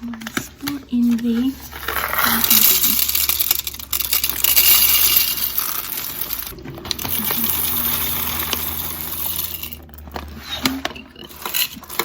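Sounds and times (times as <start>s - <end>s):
coffee beans pouring into hopper: 1.7s - 12.0s.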